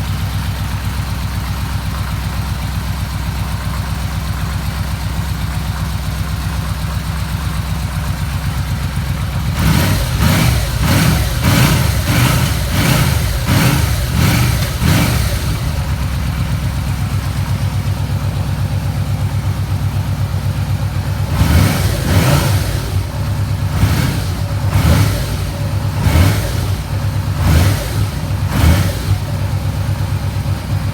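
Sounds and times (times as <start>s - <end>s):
motorcycle engine idling: 0.0s - 30.9s
motorcycle throttle blips: 8.0s - 30.9s.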